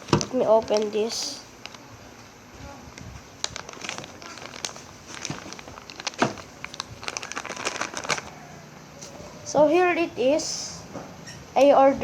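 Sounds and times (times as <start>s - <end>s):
packaging crinkling and rustling: 0.0s - 2.2s, 2.8s - 9.2s.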